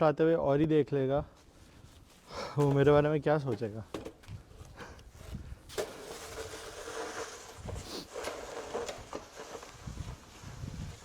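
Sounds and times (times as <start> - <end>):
snow shovel scraping snow: 5.2 - 11.0.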